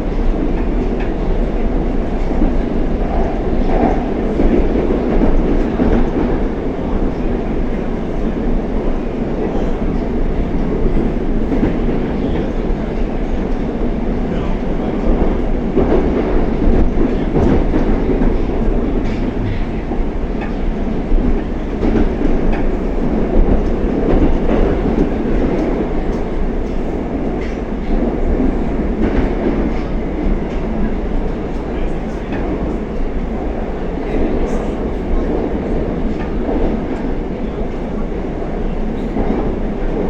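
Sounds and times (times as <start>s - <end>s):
metro train rumbling: 0.0s - 40.0s.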